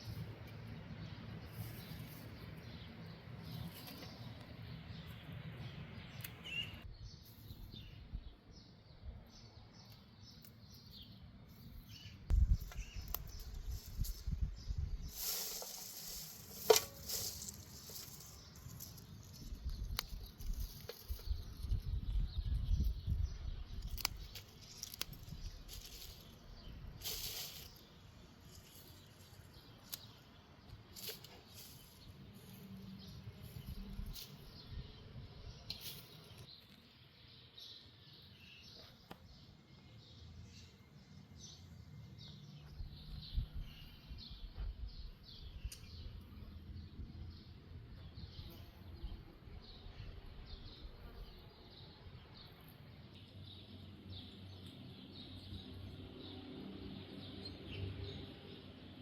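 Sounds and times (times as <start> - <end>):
small birds chirping: 0.0 - 59.0
wind buffeting microphone: 12.3 - 15.2, 19.4 - 24.2
rustling hiss: 13.2 - 21.2, 24.4 - 30.2, 30.9 - 32.6.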